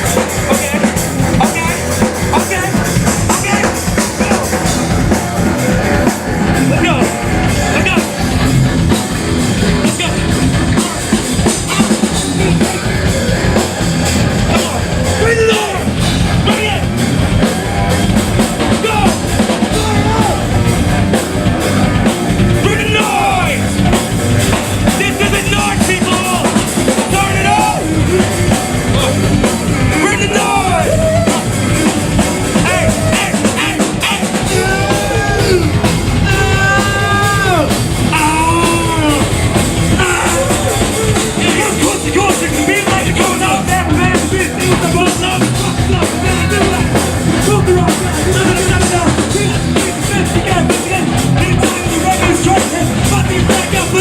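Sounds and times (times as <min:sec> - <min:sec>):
distorted electric guitars: 0:00.0 - 0:54.0
driving drum kit: 0:00.0 - 0:54.0
pitch-bending lead guitar line: 0:00.0 - 0:54.0.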